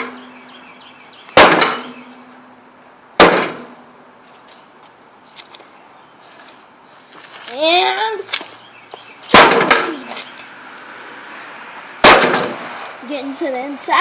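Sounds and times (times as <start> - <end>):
heavy blows on metal casing: 1.4 - 2.2, 3.2 - 3.8, 9.3 - 10.1.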